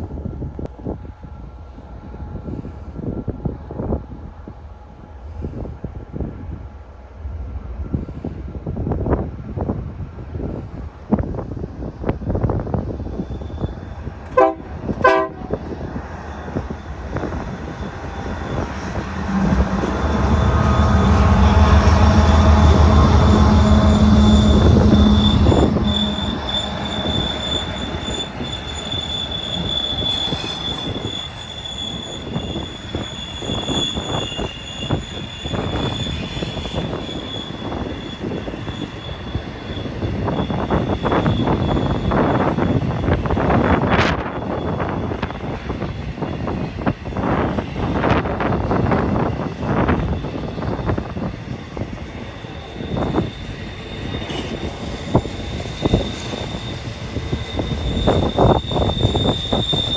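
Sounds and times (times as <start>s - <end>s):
diesel locomotive engines rumbling: 0.0s - 59.9s
high-pitched wheel squeal: 13.1s - 45.8s, 49.2s - 59.9s.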